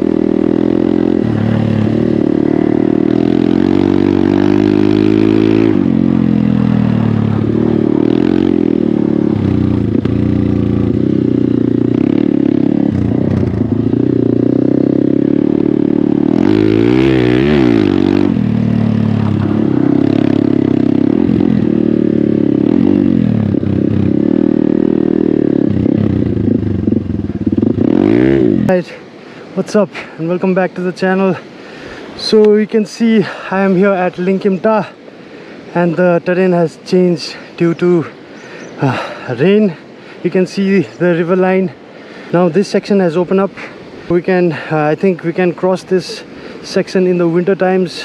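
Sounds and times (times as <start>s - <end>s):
motorcycle engine revving: 0.0s - 28.9s.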